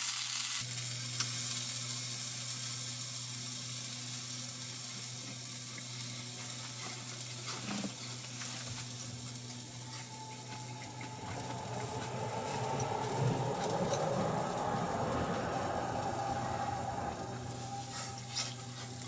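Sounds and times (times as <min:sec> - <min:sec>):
sizzling hiss: 0:00.0 - 0:19.0
low steady hum: 0:09.0 - 0:19.0.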